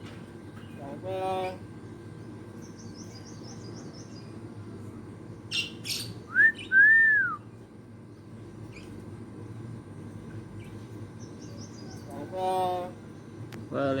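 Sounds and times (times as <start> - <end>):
myna clear whistles: 6.3 - 7.4.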